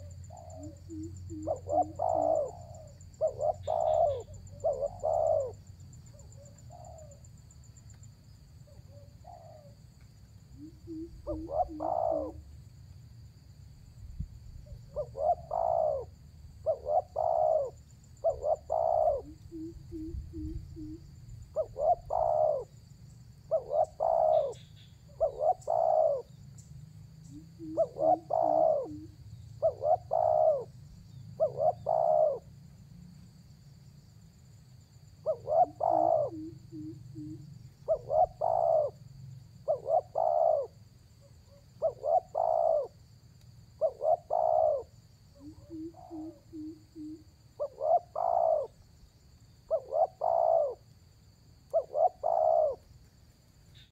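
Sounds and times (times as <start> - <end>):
dove cooing: 0.0 - 7.3, 8.7 - 9.8, 10.6 - 12.5, 14.6 - 22.8, 23.5 - 26.4, 27.2 - 30.8, 31.4 - 32.5, 35.2 - 43.0, 43.8 - 48.8, 49.6 - 50.9, 51.7 - 52.9.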